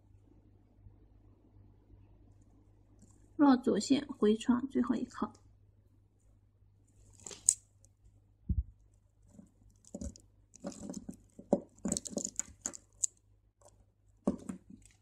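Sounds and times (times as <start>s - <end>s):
beads clicking and rustling: 7.0s - 8.0s, 8.8s - 15.0s.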